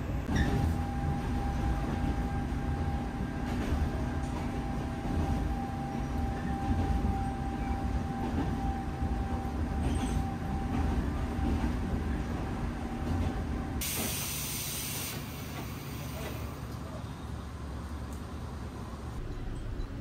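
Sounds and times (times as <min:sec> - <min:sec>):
train rumble with whine: 0:00.0 - 0:20.0
compressed air hiss of doors: 0:13.8 - 0:16.4.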